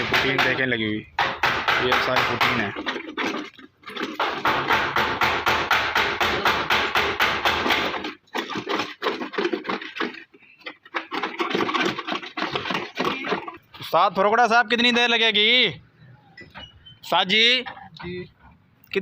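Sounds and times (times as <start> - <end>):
hand tool striking car bodywork: 1.2 - 3.0, 4.1 - 9.3.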